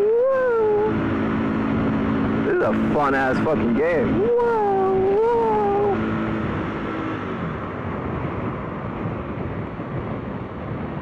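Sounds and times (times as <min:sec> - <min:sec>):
motorcycle engine running: 0:00.0 - 0:10.2
wind rushing over microphone: 0:00.0 - 0:11.0.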